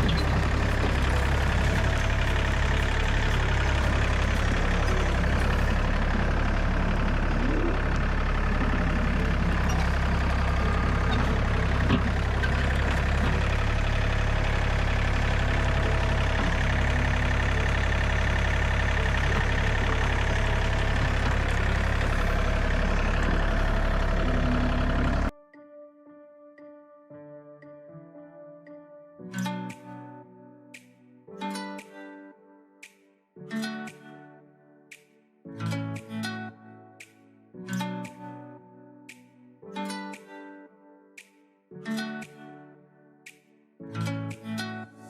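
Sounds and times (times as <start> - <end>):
diesel tractor engine running: 0.0 - 25.3.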